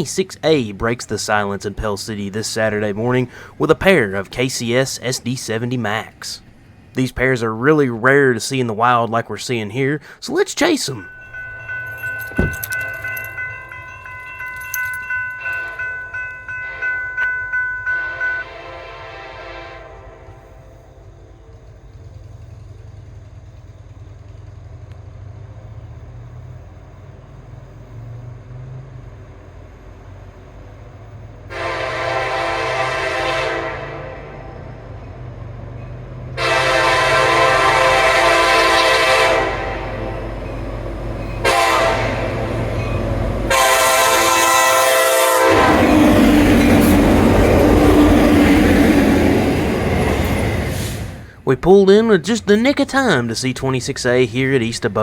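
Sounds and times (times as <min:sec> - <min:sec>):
diesel freight train rumbling: 0:00.0 - 0:55.0
crossing warning bell ringing: 0:07.0 - 0:20.6, 0:31.2 - 0:50.7
train air horn blasts: 0:18.0 - 0:20.9, 0:31.5 - 0:34.8, 0:36.4 - 0:40.4, 0:41.4 - 0:42.6, 0:43.5 - 0:49.4.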